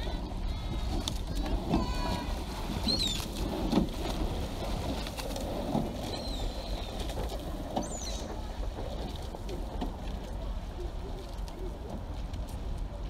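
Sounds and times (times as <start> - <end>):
steady low rumble: 0.0 - 13.0
short high bird calls: 2.8 - 3.2.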